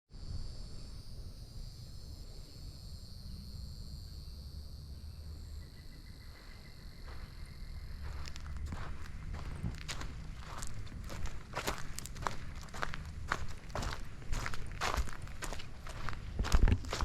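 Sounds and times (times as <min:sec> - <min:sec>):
insects trilling: 0:00.2 - 0:17.0
footsteps on trail: 0:07.0 - 0:17.0.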